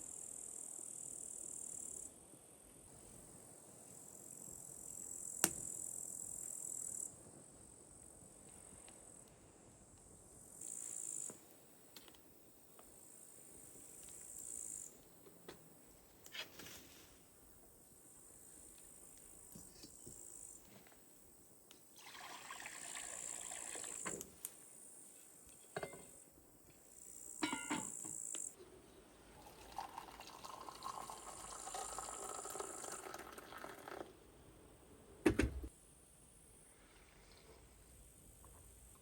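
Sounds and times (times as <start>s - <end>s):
water pouring into container: 21.9s - 24.2s, 29.4s - 34.1s.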